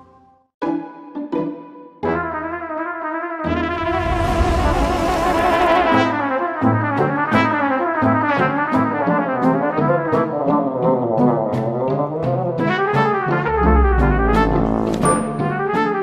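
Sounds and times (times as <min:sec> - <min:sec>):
brass-led instrumental music: 0:02.0 - 0:16.0.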